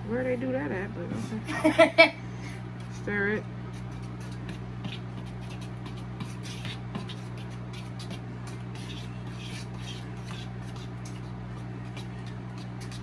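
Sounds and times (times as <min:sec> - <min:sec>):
steady low hum: 0:00.0 - 0:13.0
fork scraping a bowl: 0:03.6 - 0:13.0.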